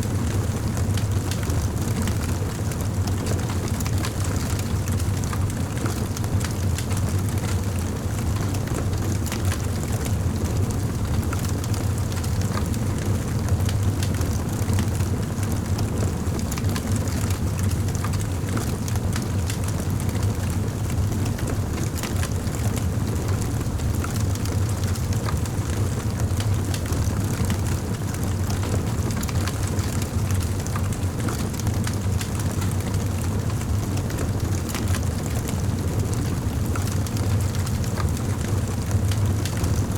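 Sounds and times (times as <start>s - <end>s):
low rumble of flames: 0.0s - 39.9s.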